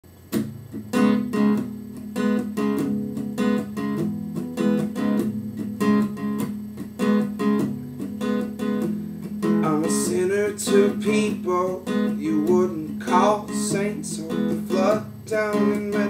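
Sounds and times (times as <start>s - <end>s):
acoustic guitar strumming chords: 0.1s - 16.0s.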